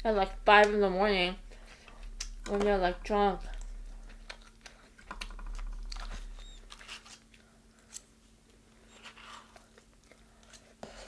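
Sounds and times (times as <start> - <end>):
crunchy chewing of fried chicken: 3.6 - 11.0.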